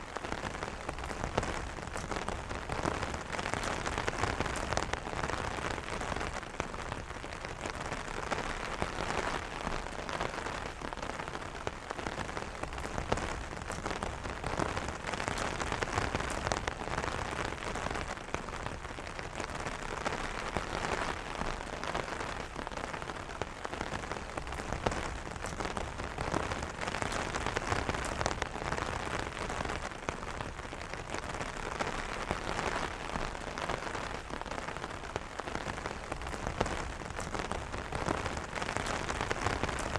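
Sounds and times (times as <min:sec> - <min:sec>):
rain hiss: 0:00.0 - 0:39.9
rain tapping on umbrella: 0:00.0 - 0:39.9.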